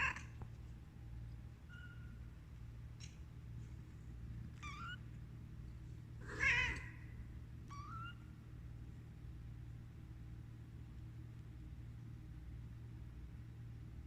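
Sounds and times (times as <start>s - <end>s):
steady low hum: 0.0s - 14.0s
cat meowing: 4.6s - 5.0s, 6.2s - 7.1s, 7.7s - 8.2s.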